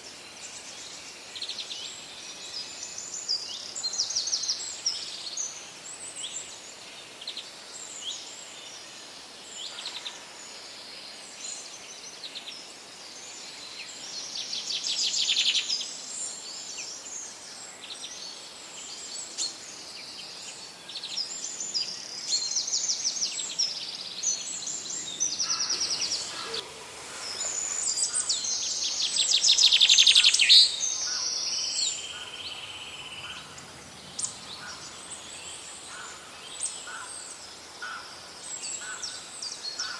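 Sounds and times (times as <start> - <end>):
steady background hiss: 0.0 - 39.9
birds chirping and trilling: 17.9 - 39.9.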